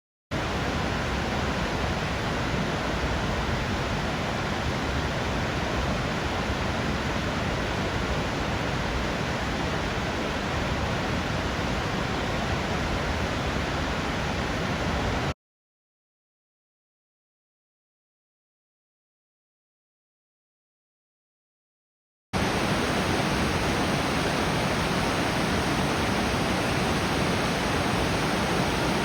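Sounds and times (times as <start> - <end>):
waterfall rushing: 22.4 - 29.0.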